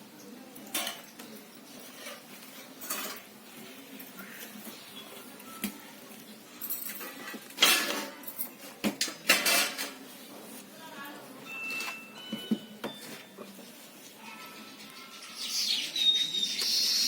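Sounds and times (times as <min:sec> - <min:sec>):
metal dishes clattering: 0:00.7 - 0:01.2, 0:01.8 - 0:03.4, 0:06.6 - 0:10.1.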